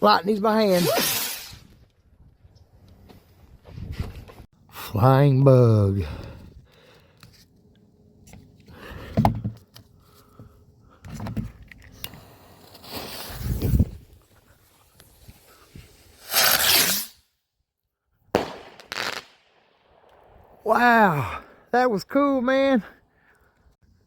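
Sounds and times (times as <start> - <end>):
spinner firework hissing: 0.6 - 1.7, 12.0 - 17.2.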